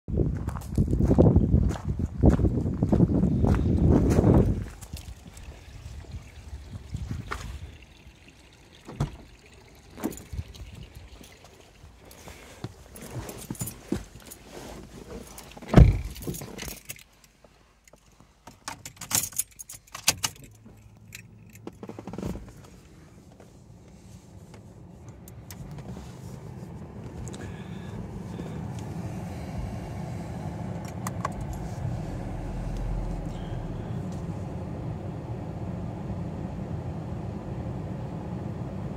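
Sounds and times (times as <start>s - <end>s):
keys jangling: 15.3s - 17.3s, 18.6s - 21.8s
car engine starting and idling: 18.6s - 38.9s.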